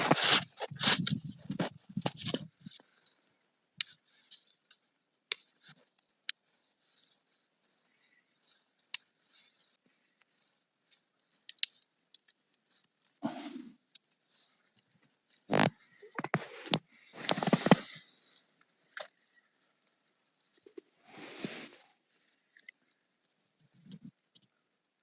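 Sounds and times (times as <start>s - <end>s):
scraping sounds: 0.0s - 3.3s, 15.4s - 18.3s, 20.6s - 22.0s
dull rustle: 0.0s - 13.2s
campfire crackling: 0.0s - 25.0s.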